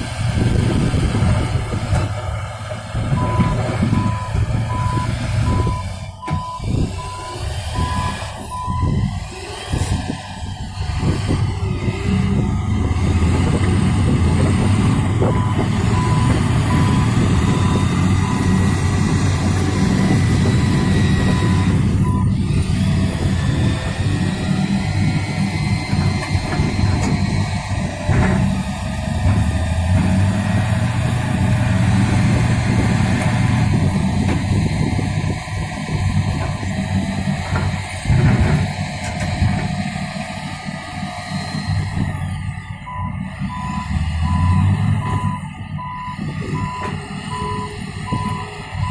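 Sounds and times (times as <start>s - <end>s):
heavy truck engine running: 0.0s - 48.9s
reversing alarm beeping: 3.1s - 9.0s, 15.2s - 18.7s, 19.8s - 22.4s, 42.9s - 48.9s.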